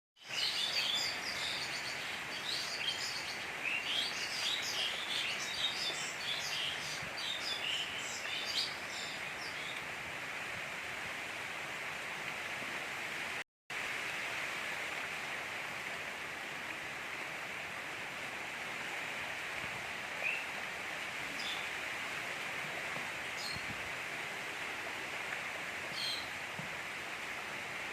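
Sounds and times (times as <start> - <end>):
gentle rain falling: 0.2 - 27.9.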